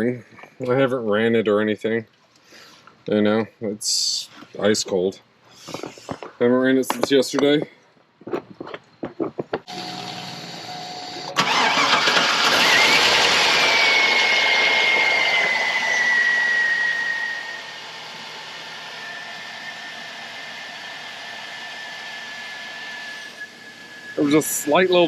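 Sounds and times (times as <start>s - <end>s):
engine whine: 9.6s - 25.0s
engine starting and idling: 9.7s - 16.6s.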